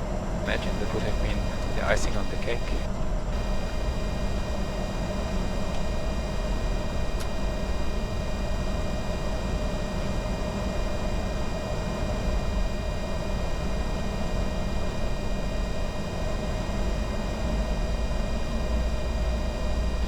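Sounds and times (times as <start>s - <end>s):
faint high whines: 0.4s - 20.0s
cockpit airflow rush and rumble: 0.5s - 9.0s.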